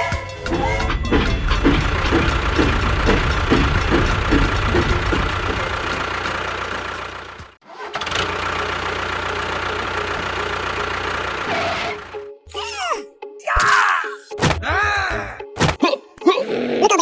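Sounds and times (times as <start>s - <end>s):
engine chugging rhythmically: 0.0s - 12.4s
steady engine hum: 0.3s - 12.4s.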